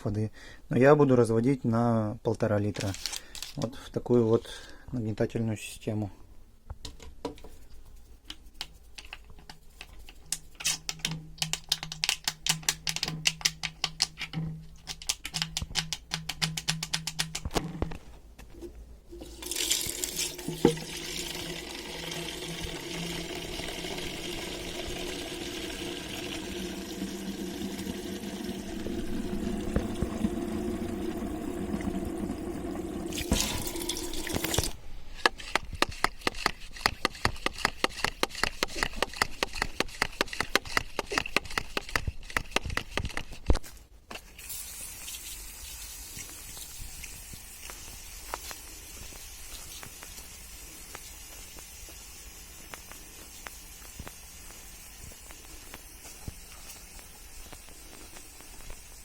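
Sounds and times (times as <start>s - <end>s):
water pouring into sprayer bottle: 19.1s - 34.8s
sprayer pump clicking strokes: 34.2s - 43.3s
sprayer hiss: 44.6s - 59.0s.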